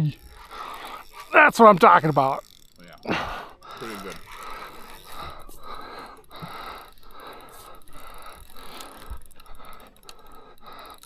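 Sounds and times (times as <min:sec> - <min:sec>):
fishing reel grinding: 0:00.0 - 0:11.0.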